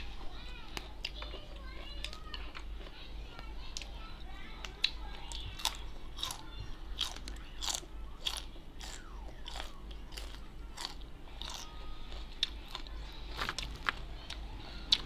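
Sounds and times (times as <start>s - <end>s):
person crunching vegetable: 4.8s - 15.0s.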